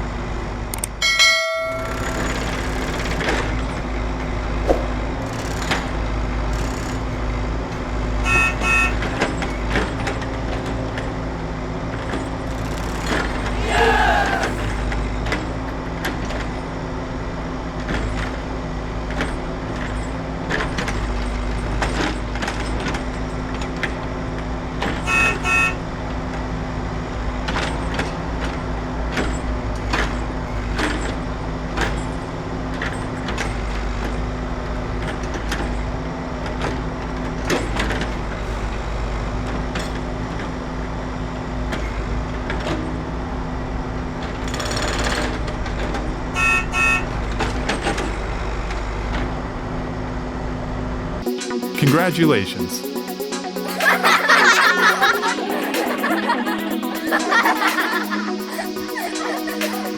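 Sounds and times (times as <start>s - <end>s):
horn toots: 8.2s - 9.1s, 25.0s - 25.8s.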